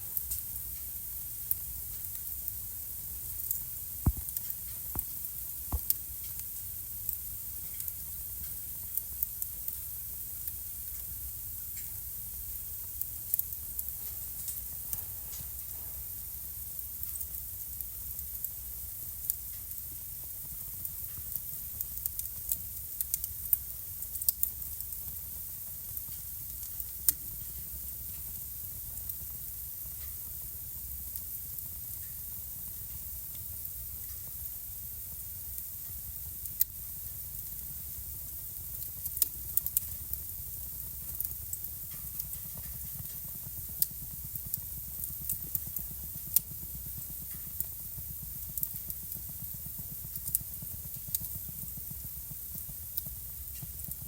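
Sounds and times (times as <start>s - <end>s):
fire crackles and pops: 0.0s - 54.0s
fire hiss and rumble: 0.0s - 54.0s.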